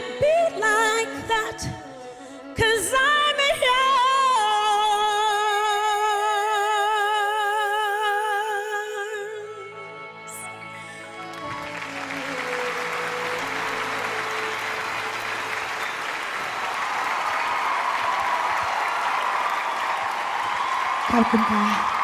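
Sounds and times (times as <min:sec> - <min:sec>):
woman singing: 0:00.0 - 0:10.5.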